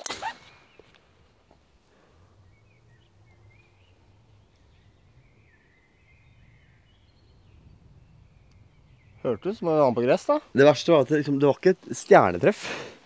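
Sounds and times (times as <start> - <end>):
faint bird chirps: 1.9 - 9.6.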